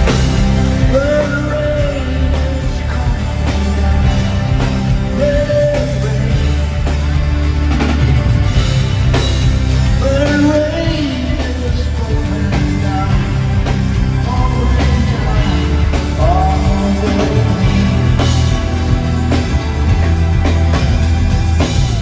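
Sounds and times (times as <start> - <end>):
man singing: 0.0 - 7.4, 9.8 - 20.5
live rock band playing: 0.0 - 22.0.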